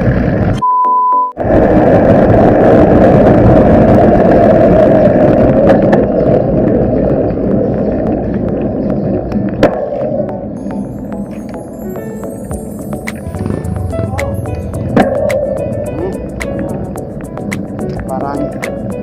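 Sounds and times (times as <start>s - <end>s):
bicycle tyre and road rumble: 0.0s - 0.6s, 1.4s - 19.0s
wind buffeting microphone: 1.4s - 11.0s.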